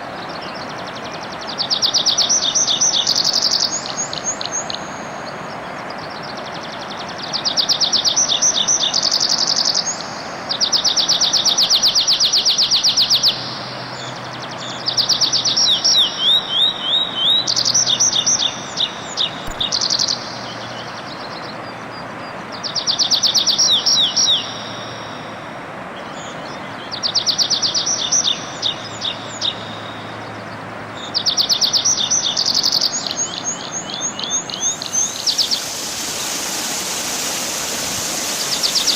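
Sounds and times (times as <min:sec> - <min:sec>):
songbird singing: 0:00.0 - 0:38.9
steady background rush: 0:34.6 - 0:38.9.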